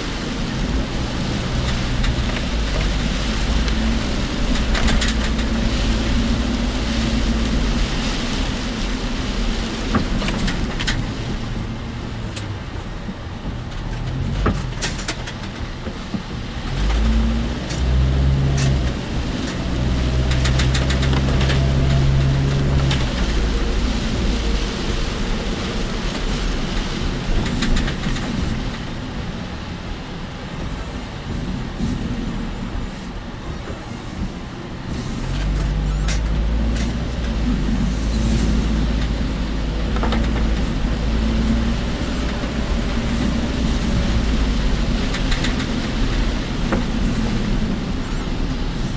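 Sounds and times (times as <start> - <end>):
car road and engine noise: 0.0 - 48.9
rain and wind: 0.0 - 48.9
deep low hum: 16.1 - 28.6, 34.0 - 48.9.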